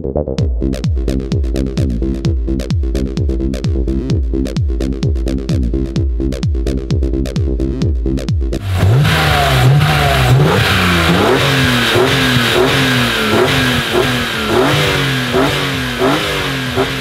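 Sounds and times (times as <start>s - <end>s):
car engine revving hard: 8.6s - 17.0s.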